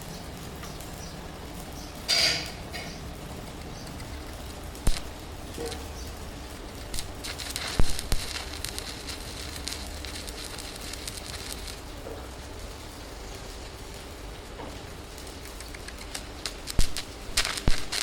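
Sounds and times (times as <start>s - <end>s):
arc welding crackling: 0.0s - 18.0s
sharp metallic knocks: 2.1s - 3.0s.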